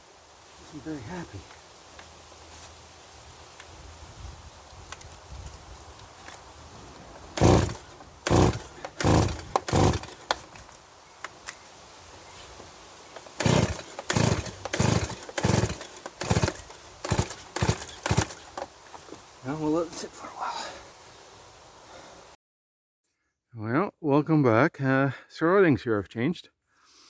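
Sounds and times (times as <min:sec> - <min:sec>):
engine turning over: 0:07.3 - 0:10.7, 0:13.2 - 0:18.7
chainsaw recoil starter pulls: 0:07.3 - 0:10.8, 0:13.2 - 0:18.7.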